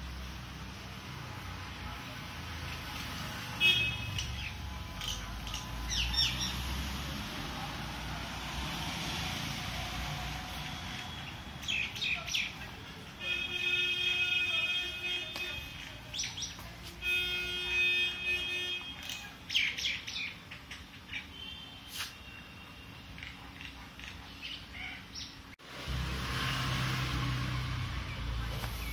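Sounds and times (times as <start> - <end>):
birds chirping: 2.8 - 7.8, 9.6 - 25.6, 27.8 - 28.9.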